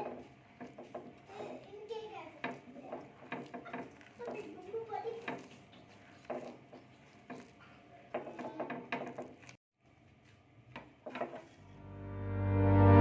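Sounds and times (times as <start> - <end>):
background music: 11.8 - 13.0.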